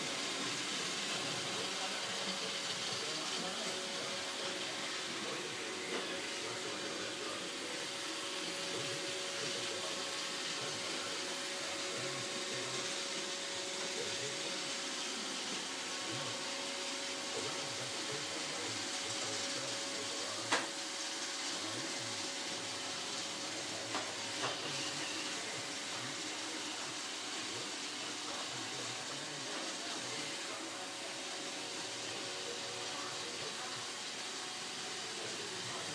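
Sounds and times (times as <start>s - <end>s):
robot vacuum whirring: 0.0s - 16.2s.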